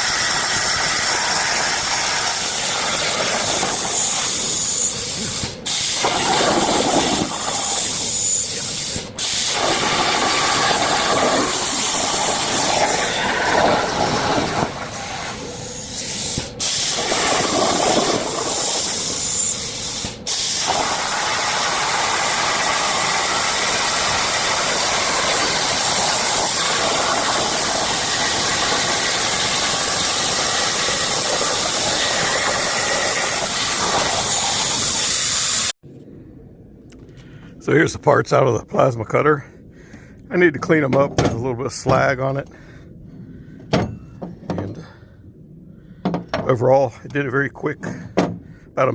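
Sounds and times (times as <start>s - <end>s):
plasma cutter arc hissing: 0.0s - 35.7s.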